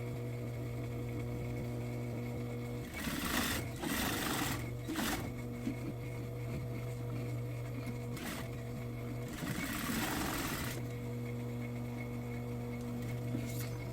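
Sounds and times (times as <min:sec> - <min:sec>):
sewing machine running: 0:02.8 - 0:05.4, 0:08.1 - 0:10.8.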